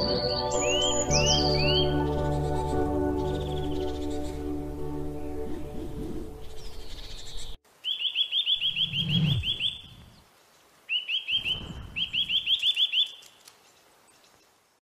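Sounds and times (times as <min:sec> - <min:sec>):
songbird singing repeated high notes: 0:00.0 - 0:04.5, 0:06.4 - 0:10.2, 0:10.9 - 0:13.4.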